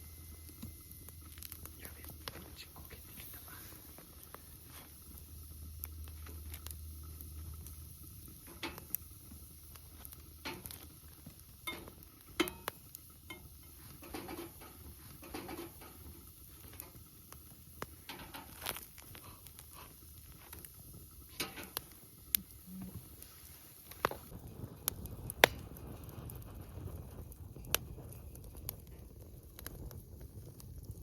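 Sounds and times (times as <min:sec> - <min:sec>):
campfire crackling: 0:00.0 - 0:31.0
light clicks and pops: 0:00.5 - 0:23.1, 0:23.9 - 0:25.9.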